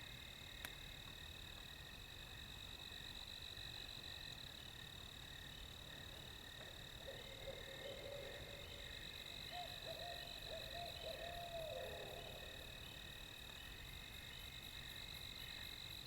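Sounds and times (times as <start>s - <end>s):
night insects chorus: 0.0s - 16.0s
distant owl hooting: 7.0s - 8.8s, 9.5s - 12.6s.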